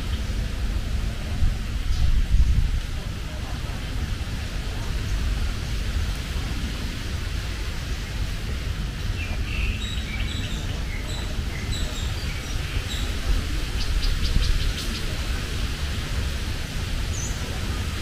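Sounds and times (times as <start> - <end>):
steady low rumble: 0.0 - 18.0
small birds chirping: 9.0 - 15.2.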